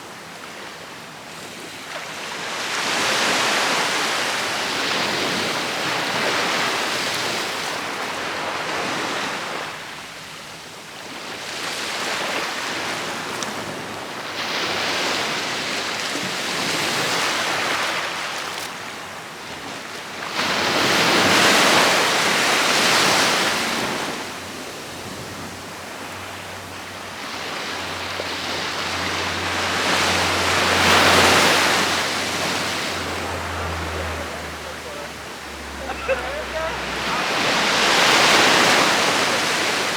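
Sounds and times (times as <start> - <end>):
ocean waves breaking: 0.0 - 10.2, 11.0 - 39.9.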